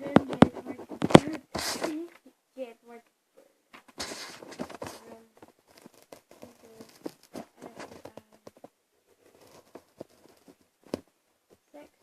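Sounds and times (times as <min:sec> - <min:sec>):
pen tapping and scratching paper: 0:00.0 - 0:02.0, 0:03.8 - 0:11.1.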